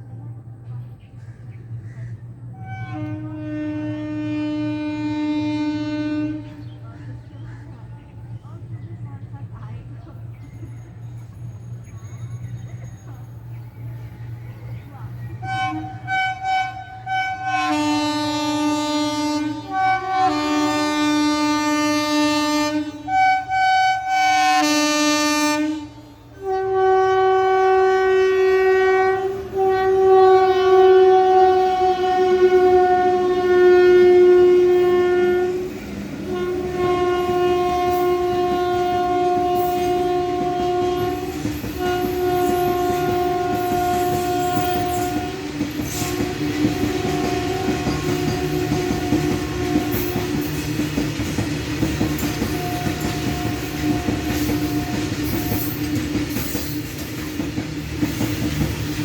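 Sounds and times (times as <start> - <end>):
train running on rails: 0.0 - 59.0
locomotive horn blasts: 2.5 - 6.7, 15.4 - 56.4.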